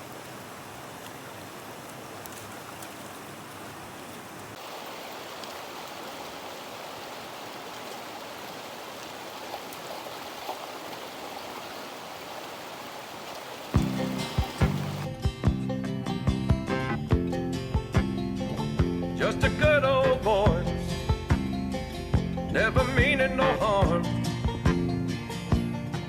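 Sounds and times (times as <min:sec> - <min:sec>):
steady rain falling: 0:00.0 - 0:15.1.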